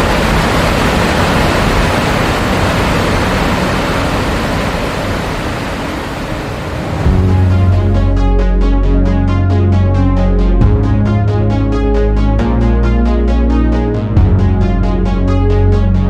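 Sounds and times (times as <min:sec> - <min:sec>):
waterfall roaring: 0:00.0 - 0:07.9
electronic music: 0:06.8 - 0:16.0.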